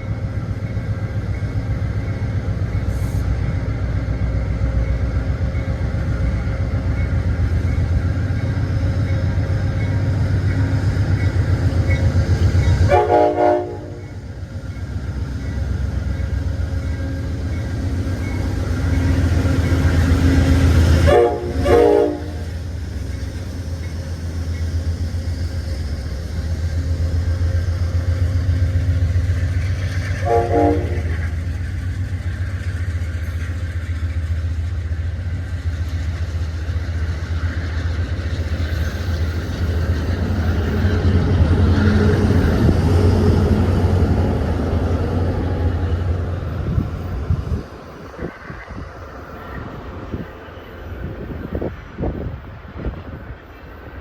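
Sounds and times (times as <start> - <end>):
diesel locomotive rumbling: 0.0 - 54.0
train air horn blasts: 12.9 - 14.1, 21.0 - 22.6, 30.2 - 31.3.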